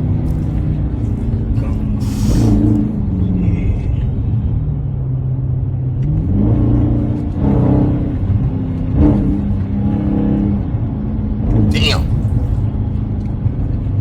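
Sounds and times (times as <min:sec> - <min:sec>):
car engine accelerating hard: 0:05.7 - 0:11.5.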